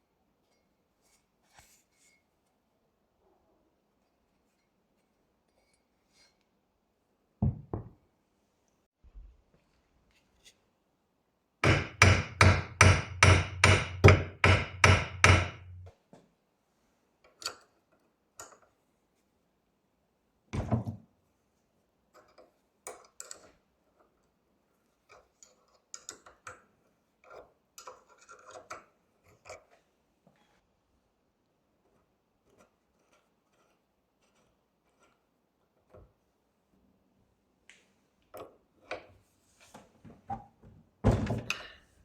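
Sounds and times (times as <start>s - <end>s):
hammer striking: 11.6s - 15.8s.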